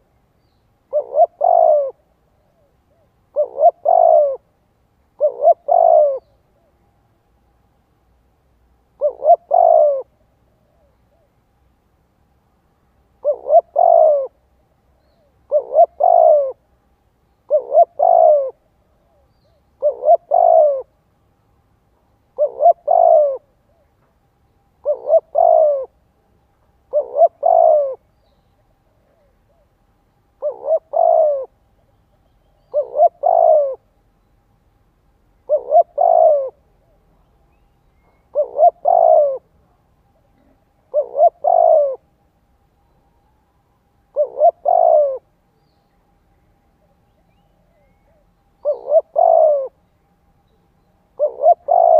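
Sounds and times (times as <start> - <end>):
dove cooing: 0.9 - 4.5, 5.2 - 6.8, 9.0 - 11.4, 13.2 - 14.4, 15.0 - 16.7, 17.5 - 21.0, 22.3 - 24.1, 24.8 - 26.0, 26.9 - 28.1, 28.9 - 29.8, 30.4 - 33.9, 35.4 - 37.3, 38.0 - 42.1, 44.1 - 45.3, 46.8 - 49.8, 51.1 - 51.9.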